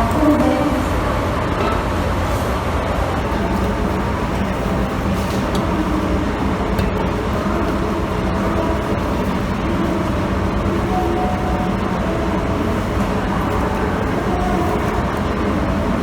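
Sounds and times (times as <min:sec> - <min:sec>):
locomotive diesel engine idling: 0:00.0 - 0:16.0.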